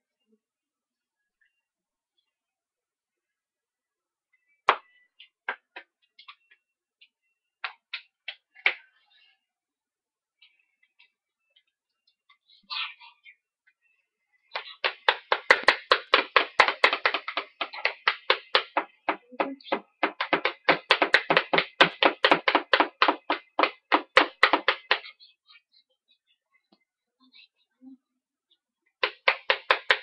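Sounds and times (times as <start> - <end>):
hands clapping fast: 4.6 - 6.6, 7.6 - 8.9, 14.5 - 25.2, 29.0 - 30.0.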